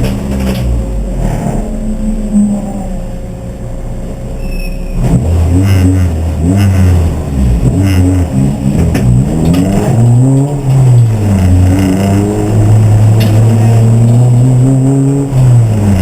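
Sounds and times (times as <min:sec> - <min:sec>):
race car engine revving: 0:00.0 - 0:04.1, 0:04.9 - 0:16.0.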